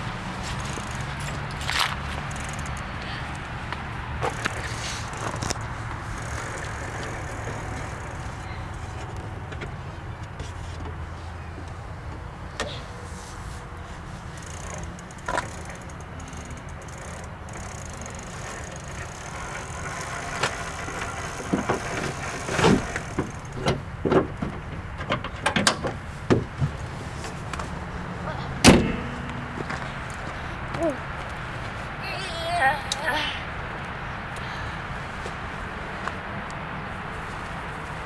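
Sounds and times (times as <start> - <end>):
car engine idling: 0.0 - 32.0
knocks and clicks: 28.5 - 31.4
loud thump: 28.6 - 30.2.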